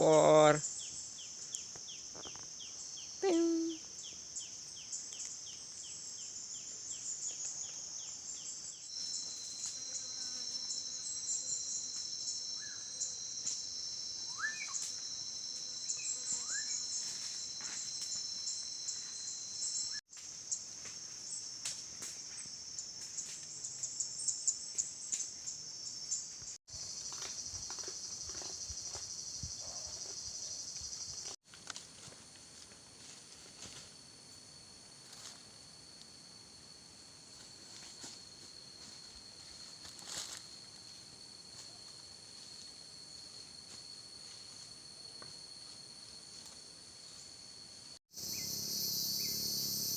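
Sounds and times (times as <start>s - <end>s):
insects trilling: 0.0s - 49.9s
bird chirps: 14.3s - 14.9s, 48.2s - 49.9s.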